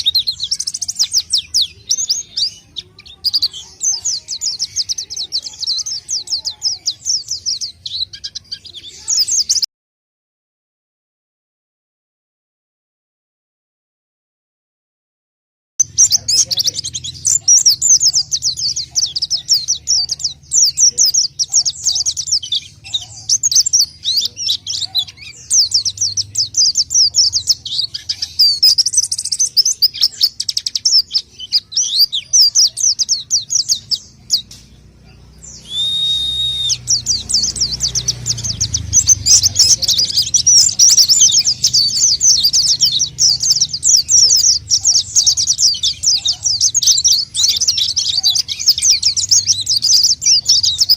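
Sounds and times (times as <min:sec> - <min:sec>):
bird twittering song: 0:00.0 - 0:09.7, 0:15.8 - 0:50.9
short steady whistle: 0:35.7 - 0:36.8.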